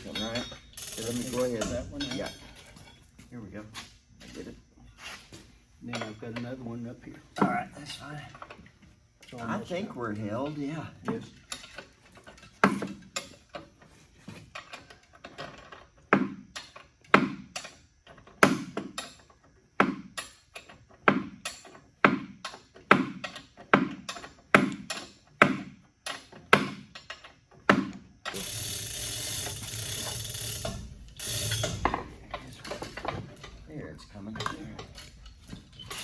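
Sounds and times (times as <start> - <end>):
ratchet clicks: 0.0 - 2.4, 28.2 - 32.0
steady rasping noise: 28.3 - 36.0.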